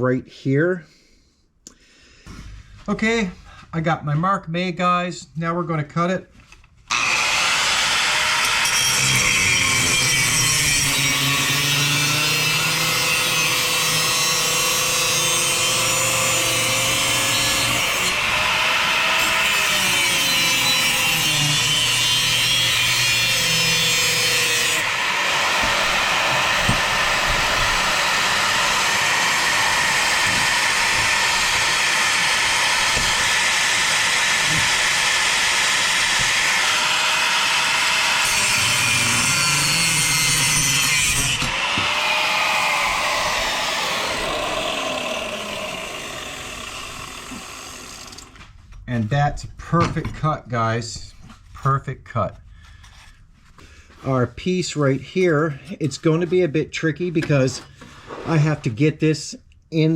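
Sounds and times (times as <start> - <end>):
angle grinder cutting metal pipe: 6.9 - 48.4.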